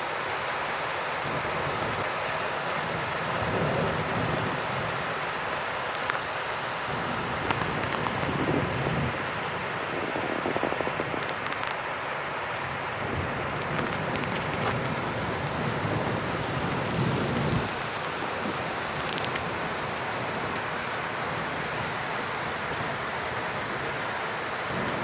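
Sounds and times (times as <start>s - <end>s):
heavy rain hissing: 0.0s - 25.0s.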